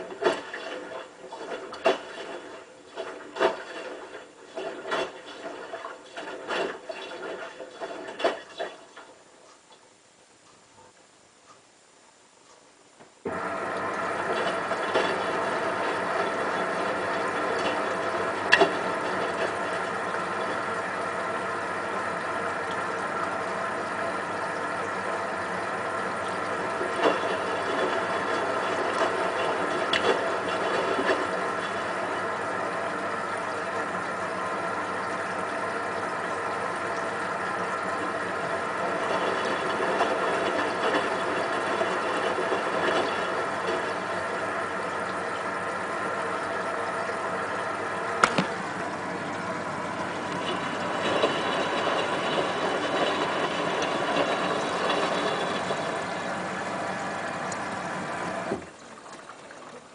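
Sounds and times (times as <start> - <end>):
washing machine motor hum: 0.0 - 11.6, 12.4 - 59.9
sharp knock: 48.2 - 48.6.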